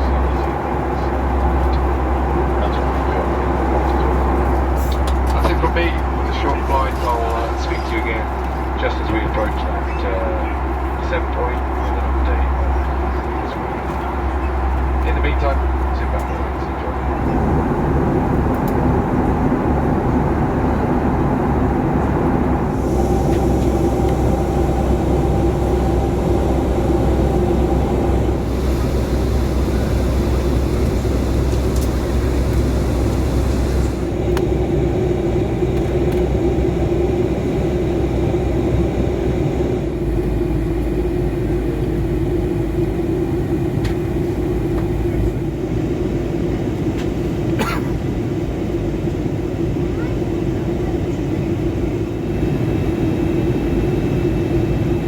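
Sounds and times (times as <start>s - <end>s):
constant hum: 0.0s - 55.0s
jet engines roaring: 0.0s - 55.0s
rushing air: 17.2s - 41.0s.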